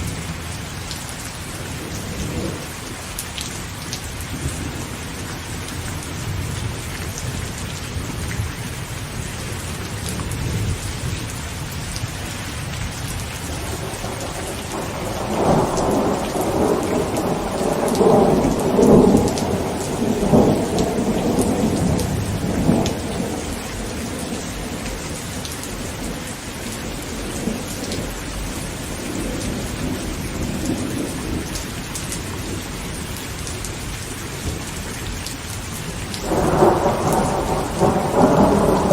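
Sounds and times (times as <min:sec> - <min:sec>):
heavy rain on a tent: 0:00.0 - 0:38.9
thunder rumbling: 0:13.0 - 0:33.1, 0:35.8 - 0:38.9.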